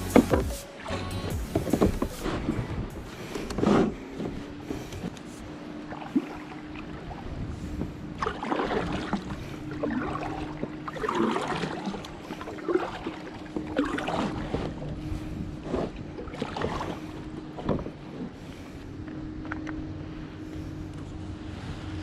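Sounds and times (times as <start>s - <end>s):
paddle splashing in water: 5.9s - 18.8s.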